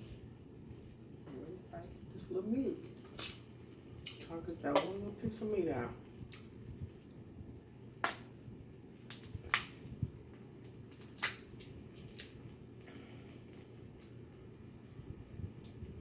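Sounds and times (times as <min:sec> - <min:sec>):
crab shells cracking: 0:09.0 - 0:09.8, 0:10.4 - 0:12.4.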